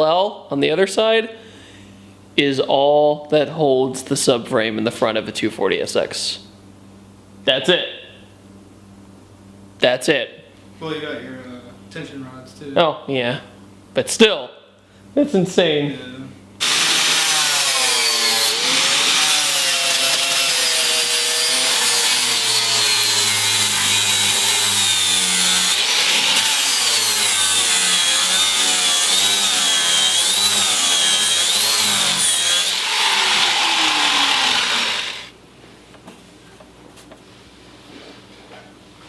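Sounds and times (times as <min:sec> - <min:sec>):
angle grinder grinding steel: 0:16.6 - 0:35.3.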